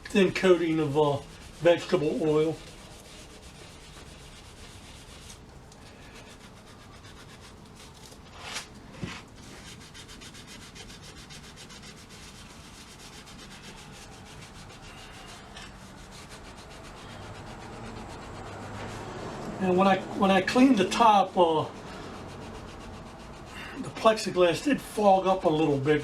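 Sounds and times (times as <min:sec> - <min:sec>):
loud scrape: 0:06.1 - 0:24.0
scrubbing rusty metal plate: 0:09.4 - 0:26.0.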